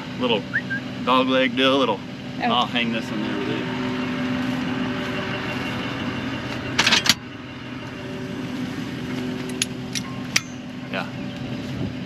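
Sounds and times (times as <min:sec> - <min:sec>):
engine humming: 0:00.0 - 0:12.0
sharp metal clinks: 0:10.0 - 0:10.8.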